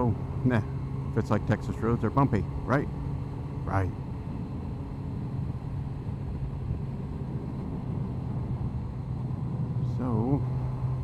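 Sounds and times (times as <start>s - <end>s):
motorcycle engine cruising: 0.0s - 11.0s
road noise: 0.0s - 11.0s
wind noise: 4.0s - 11.0s.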